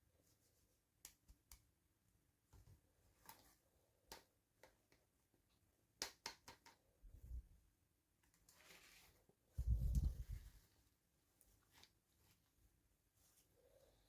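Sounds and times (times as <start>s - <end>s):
soft rustle: 8.4s - 14.0s.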